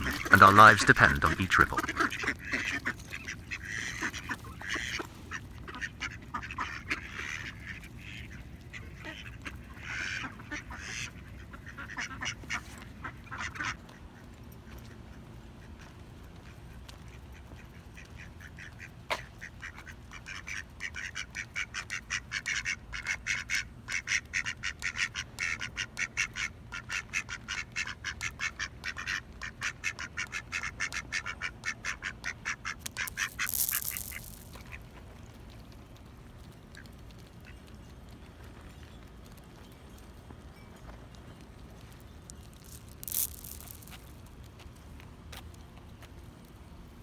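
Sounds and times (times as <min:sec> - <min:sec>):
ducks quacking: 0:00.0 - 0:05.0.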